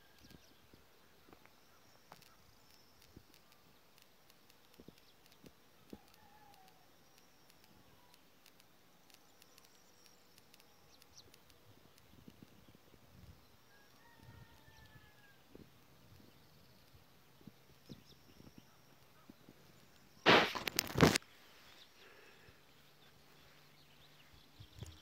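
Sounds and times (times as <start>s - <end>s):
faint bird calls: 0.0s - 25.0s
soft clicks: 2.1s - 12.6s.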